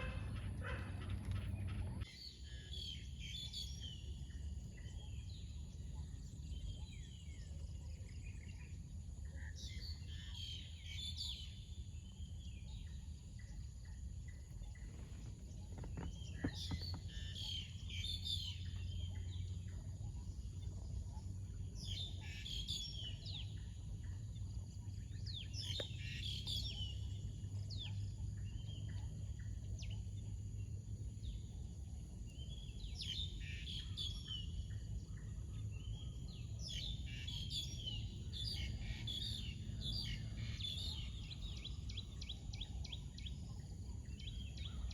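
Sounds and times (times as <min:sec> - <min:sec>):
birds chirping: 0:00.0 - 0:44.9
low steady rumble: 0:00.0 - 0:44.9.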